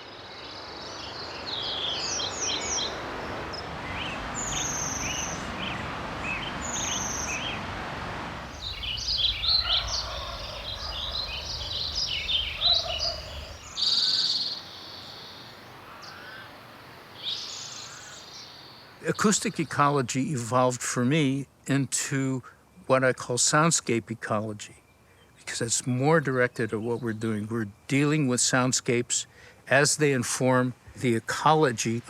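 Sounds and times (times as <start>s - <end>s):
birds chirping and trilling: 0.0s - 7.8s, 8.5s - 21.3s, 22.4s - 30.2s
steady rushing noise: 2.9s - 13.6s.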